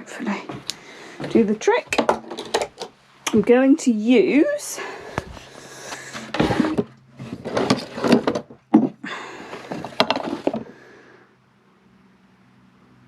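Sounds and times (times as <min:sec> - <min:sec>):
items clattering on a workbench: 0:00.5 - 0:03.0, 0:05.1 - 0:10.8.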